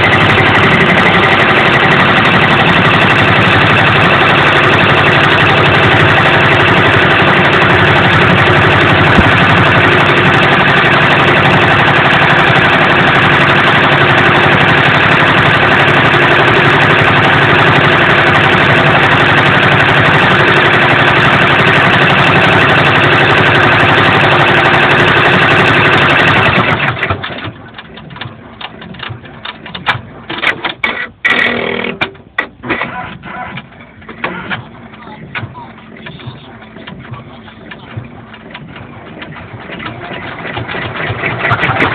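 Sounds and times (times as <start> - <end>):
embroidery machine running: 0.0 - 41.9
irregular clicks and knocks: 26.9 - 41.9.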